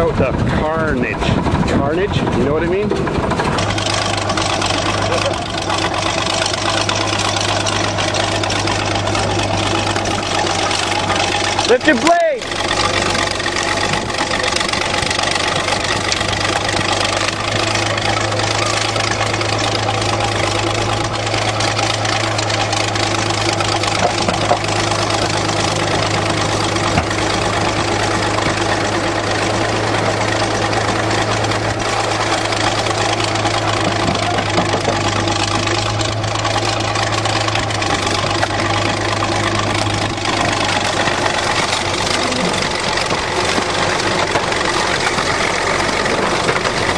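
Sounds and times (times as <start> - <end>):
engine idling: 0.0 - 46.9.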